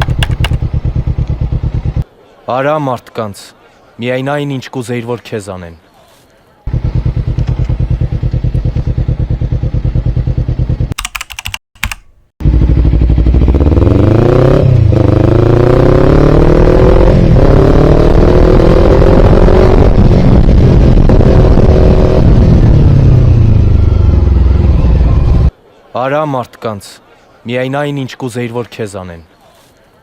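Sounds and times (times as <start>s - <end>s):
clicks: 0.0s - 0.6s, 11.0s - 12.3s
motorcycle engine accelerating: 0.0s - 2.0s, 6.7s - 11.0s, 12.4s - 25.5s.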